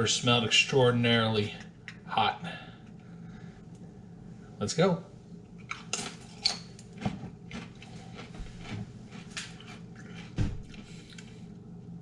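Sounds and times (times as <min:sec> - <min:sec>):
crunching and chewing chip: 0:05.6 - 0:11.6.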